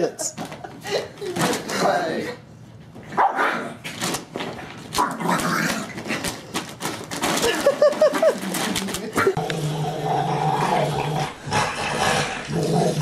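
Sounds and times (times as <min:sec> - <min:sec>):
dog scrabbling on plastic bag: 0:03.9 - 0:09.4.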